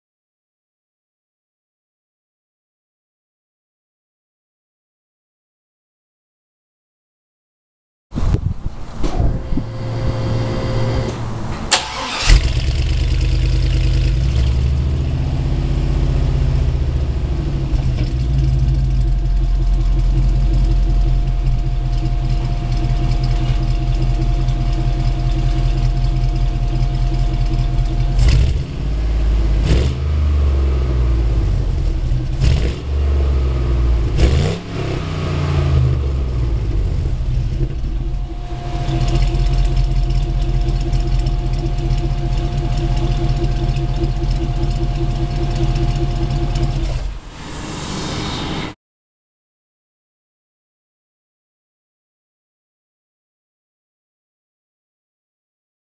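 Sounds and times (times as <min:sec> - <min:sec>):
engine throttle blips: 0:08.2 - 0:48.8
car engine starting and idling: 0:08.7 - 0:48.8.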